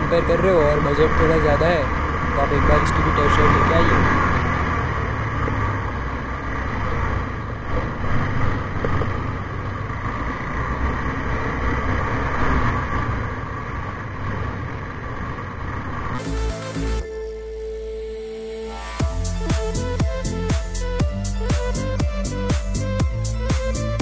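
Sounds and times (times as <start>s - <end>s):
road noise: 0.0s - 24.0s
motorcycle engine running: 18.7s - 24.0s.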